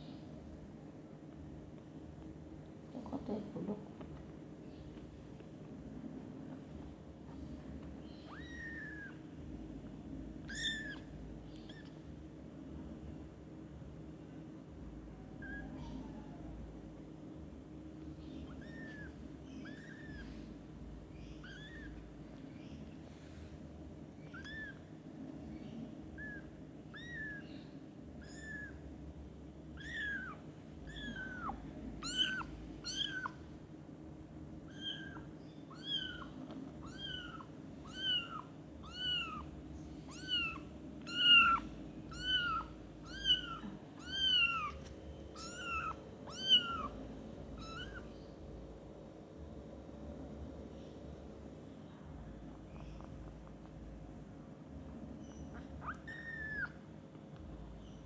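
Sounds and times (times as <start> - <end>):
kitten mewing: 10.5 - 12.0, 27.0 - 27.4, 29.8 - 33.4, 34.7 - 39.5, 40.1 - 47.0, 47.6 - 48.1, 55.5 - 56.8.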